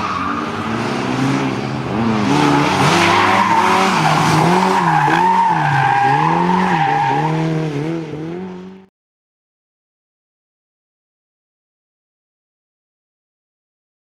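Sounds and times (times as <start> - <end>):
car engine revving: 0.0 - 8.9
tyres squealing: 2.6 - 7.4.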